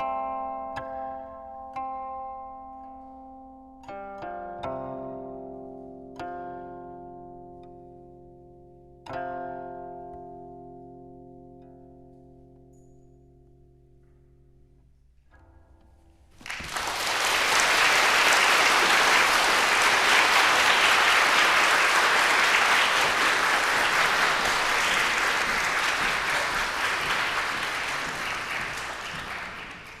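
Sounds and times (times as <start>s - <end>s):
audience applauding: 16.4s - 30.0s.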